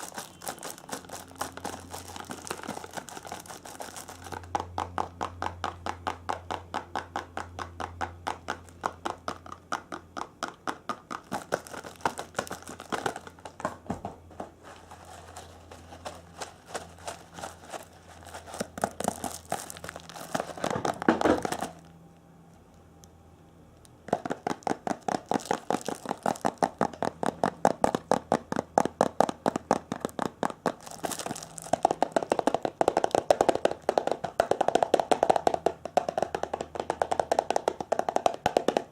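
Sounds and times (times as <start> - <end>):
rhythmic tapping and crinkling: 0.0 - 21.9, 24.0 - 38.9.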